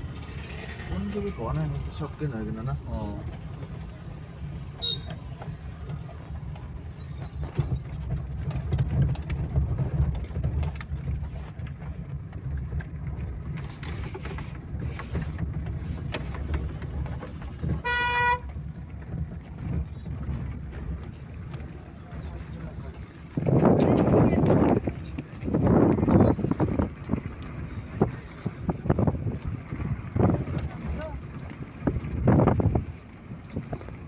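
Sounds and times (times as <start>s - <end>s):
vehicle horn toot: 4.8s - 5.2s, 17.8s - 18.5s.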